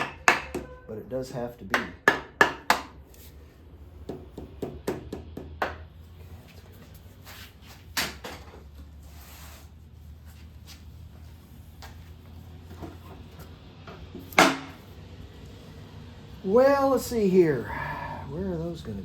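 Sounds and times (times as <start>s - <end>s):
tools and engine parts knocking: 0.0s - 0.8s, 1.7s - 3.0s, 4.0s - 6.0s, 13.8s - 14.8s.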